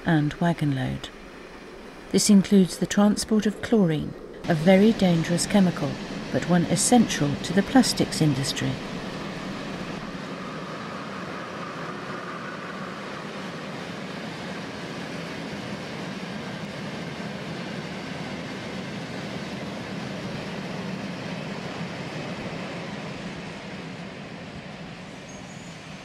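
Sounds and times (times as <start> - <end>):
train wheels on rails: 2.1 - 10.3.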